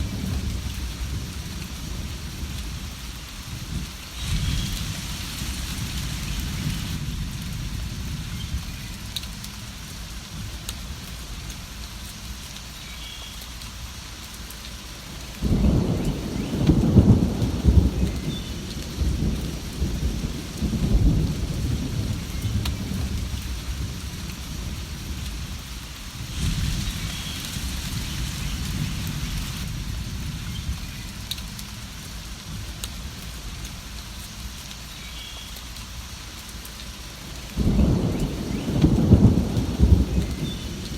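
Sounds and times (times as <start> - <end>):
steady rain: 0.0 - 40.9
thunder rolling: 3.6 - 8.9, 15.4 - 25.4, 26.2 - 31.2, 37.6 - 40.9.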